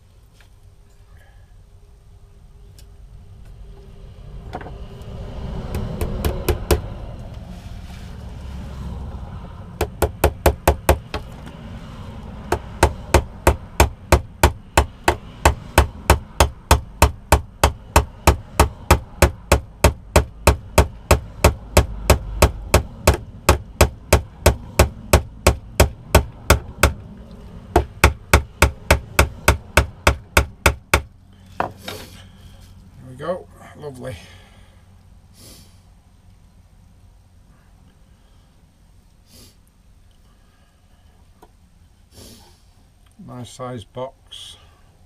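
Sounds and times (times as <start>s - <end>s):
hammer tapping pins into plywood: 9.8s - 11.3s, 12.5s - 27.0s, 27.7s - 31.8s.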